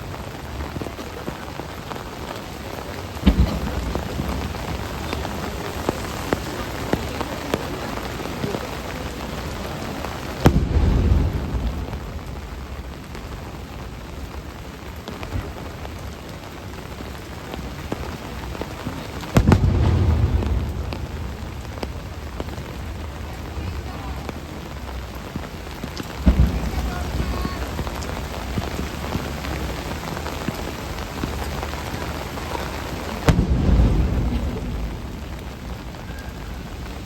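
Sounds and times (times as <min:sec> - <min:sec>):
heavy rain: 0:00.0 - 0:37.0
deep rumble: 0:19.4 - 0:24.4, 0:33.0 - 0:37.0.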